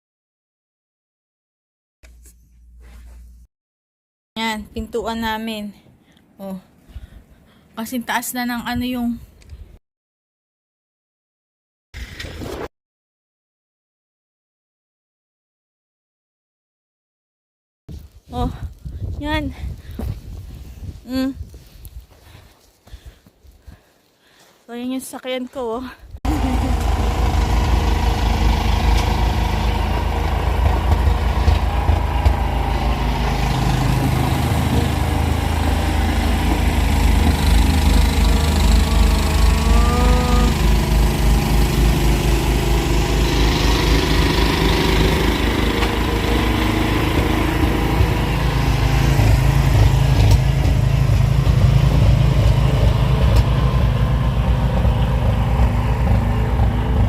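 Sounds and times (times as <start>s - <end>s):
engine running: 26.3s - 57.0s.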